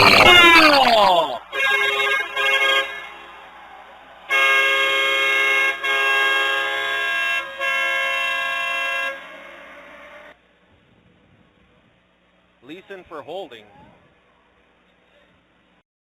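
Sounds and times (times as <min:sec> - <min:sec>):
arena goal horn blasts: 0:00.0 - 0:00.8, 0:01.4 - 0:10.4.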